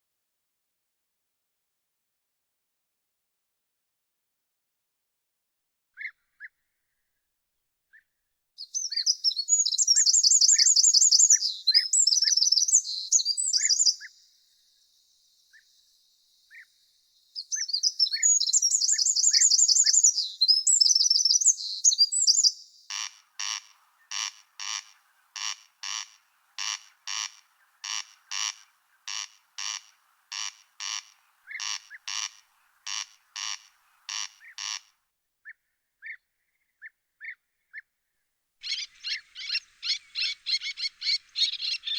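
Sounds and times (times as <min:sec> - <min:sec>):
bird trilling song: 0:08.6 - 0:34.8, 0:38.6 - 0:41.9
bird chip calls: 0:08.6 - 0:34.9, 0:38.6 - 0:41.9
rasping bird call: 0:17.5 - 0:34.9, 0:38.6 - 0:41.9.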